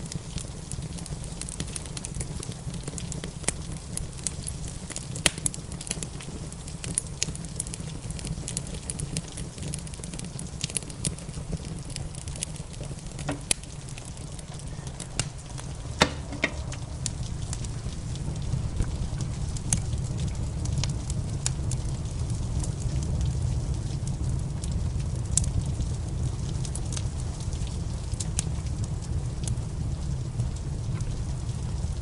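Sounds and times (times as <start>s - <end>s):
wood fire crackling and popping: 0.0s - 32.0s
low rumble: 13.0s - 25.2s.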